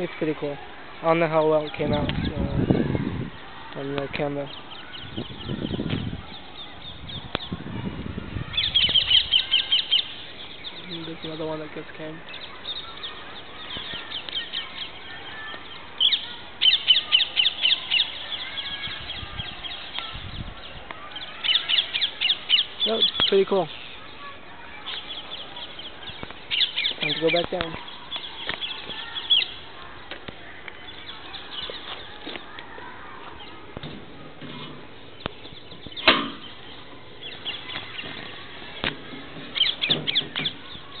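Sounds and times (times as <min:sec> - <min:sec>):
sharp knock: 0:36.0 - 0:36.5.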